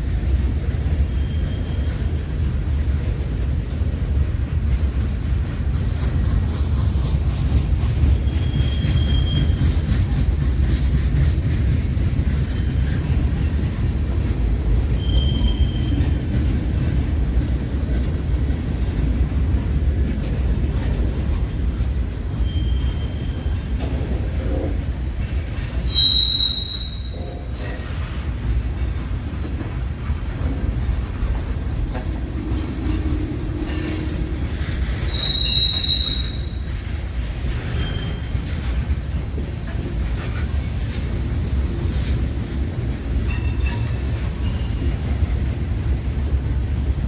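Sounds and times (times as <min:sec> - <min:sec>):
train wheels rumbling on rail: 0:00.0 - 0:47.0
high wheel squeals: 0:01.0 - 0:02.0, 0:08.2 - 0:09.8, 0:15.0 - 0:16.1, 0:22.4 - 0:23.8, 0:25.7 - 0:27.4, 0:34.0 - 0:36.9, 0:37.5 - 0:38.4.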